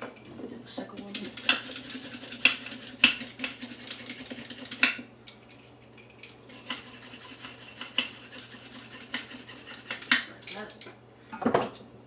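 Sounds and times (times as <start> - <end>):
peeler scraping a carrot: 1.1 - 4.9, 6.5 - 10.2.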